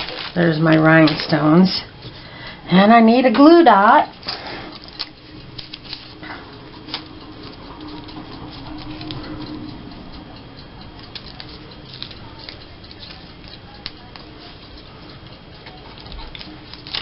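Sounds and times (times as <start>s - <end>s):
hands handling paper supplies: 0.0s - 1.4s.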